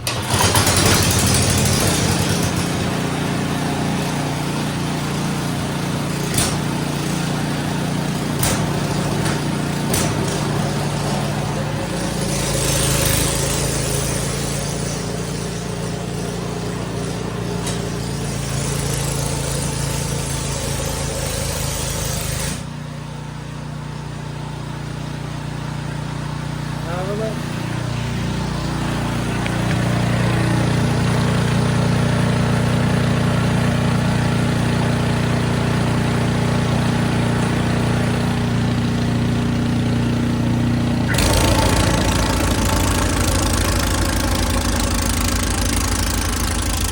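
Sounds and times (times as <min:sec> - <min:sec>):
snow blower engine running: 0:00.0 - 0:46.9.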